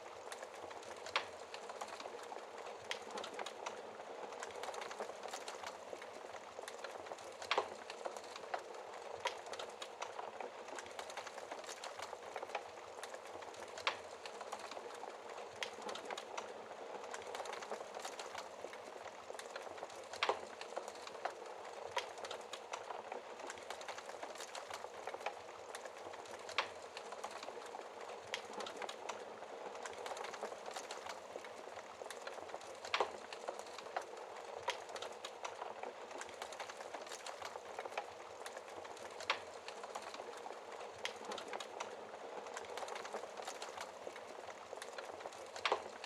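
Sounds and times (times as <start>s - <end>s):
fire crackling and popping: 0.0s - 46.0s.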